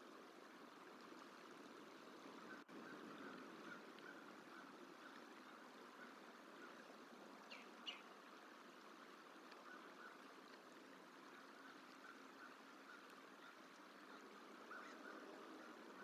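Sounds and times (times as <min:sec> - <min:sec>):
steady hiss like running water: 0:00.0 - 0:16.0
faint bird calls: 0:02.4 - 0:08.2, 0:09.1 - 0:10.6, 0:11.2 - 0:16.0.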